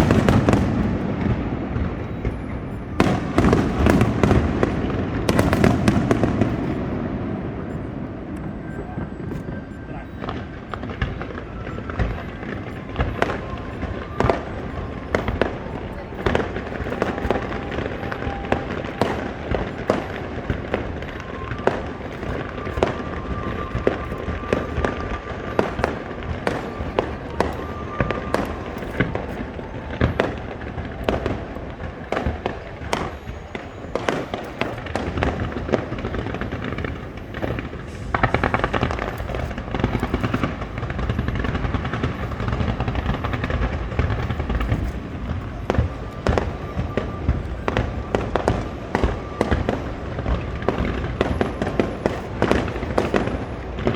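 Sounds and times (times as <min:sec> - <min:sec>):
fireworks bangs: 0:00.0 - 0:53.9
fireworks crackling: 0:00.0 - 0:53.9.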